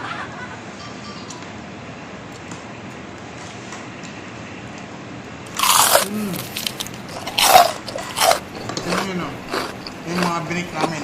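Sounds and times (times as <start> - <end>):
crunchy bite of fried chicken: 5.5 - 11.0.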